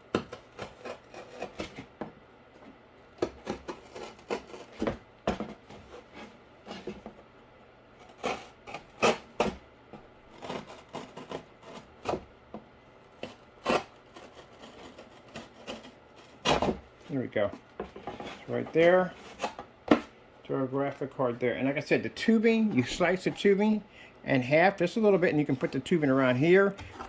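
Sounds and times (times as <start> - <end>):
utility knife cutting cardboard: 0.1 - 1.8, 3.2 - 4.9, 8.0 - 9.6, 10.3 - 12.3, 13.2 - 16.8.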